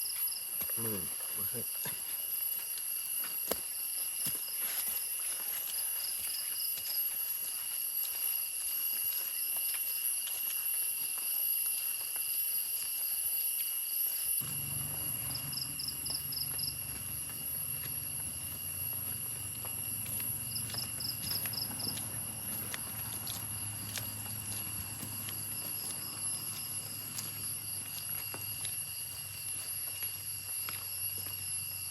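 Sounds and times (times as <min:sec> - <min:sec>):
insect pulsing chirp: 0:00.0 - 0:31.9
insects shrill drone: 0:00.0 - 0:31.9
low steady hum: 0:14.4 - 0:28.7.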